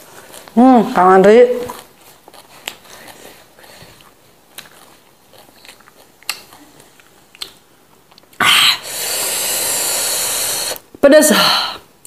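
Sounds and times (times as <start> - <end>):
biting and chewing greens: 1.5 - 8.4
mouth clicks: 7.3 - 10.9
loud hissing rush: 8.8 - 10.8.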